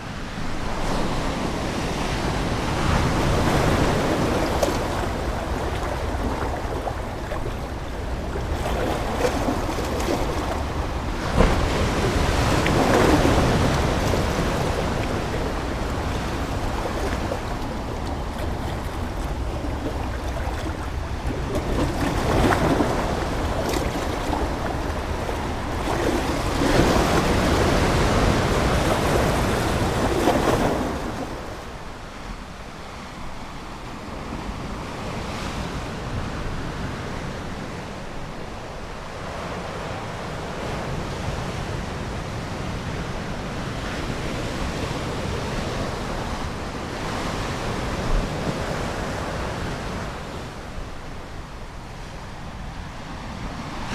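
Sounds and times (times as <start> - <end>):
ocean waves breaking: 0.0 - 53.9.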